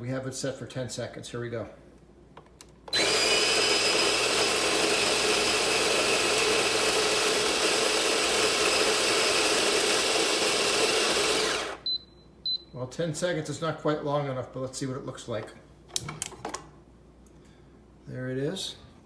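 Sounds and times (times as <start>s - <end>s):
electric coffee grinder: 2.9s - 11.8s.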